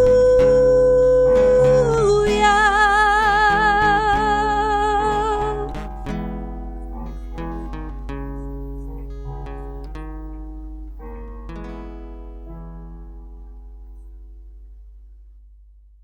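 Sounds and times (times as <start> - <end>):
person singing with vibrato: 0.0 - 6.4
strummed acoustic guitar: 0.0 - 14.4.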